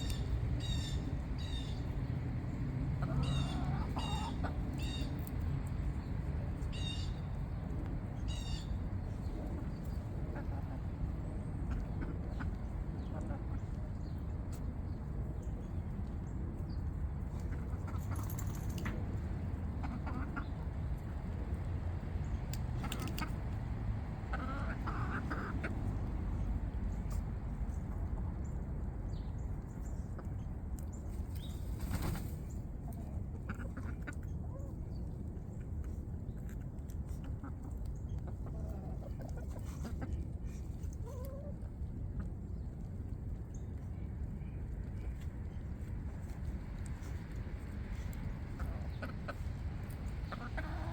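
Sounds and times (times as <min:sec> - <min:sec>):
chickens clucking: 0:00.0 - 0:50.9.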